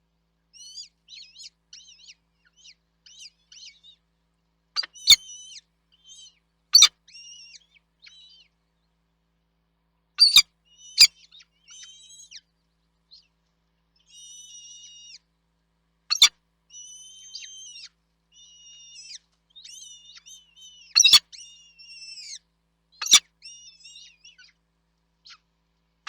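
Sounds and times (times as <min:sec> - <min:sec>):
nestling birds begging calls: 0:04.8 - 0:08.3, 0:10.2 - 0:12.4, 0:16.1 - 0:22.4, 0:23.0 - 0:24.5.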